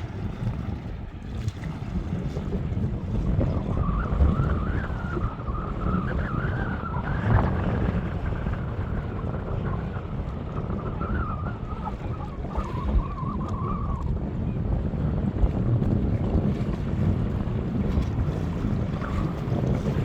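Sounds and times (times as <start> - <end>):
gusting wind on microphone: 0.0 - 20.0
wavering whistle-like tone: 3.5 - 7.8, 10.8 - 14.0.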